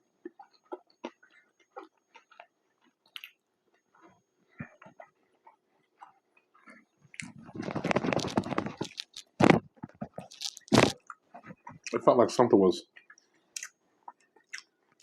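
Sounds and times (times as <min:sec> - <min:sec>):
chewing and mouth sounds: 0:00.2 - 0:12.0, 0:12.9 - 0:15.0
dense crackling: 0:07.2 - 0:11.7.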